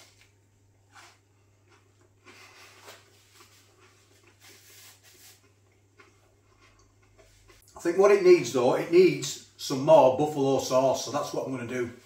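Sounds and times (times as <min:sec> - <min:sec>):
low steady hum: 0:00.0 - 0:12.0
chewing and crunching: 0:01.0 - 0:07.8.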